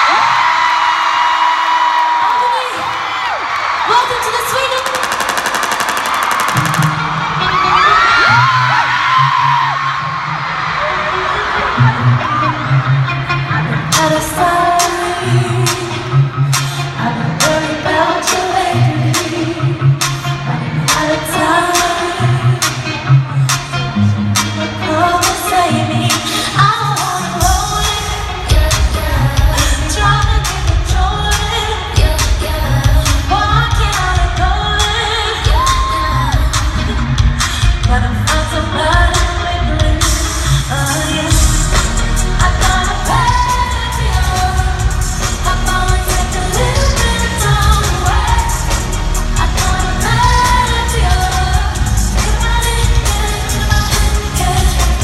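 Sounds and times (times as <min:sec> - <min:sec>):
live amplified pop music: 0:00.0 - 0:55.0
person singing: 0:24.9 - 0:55.0.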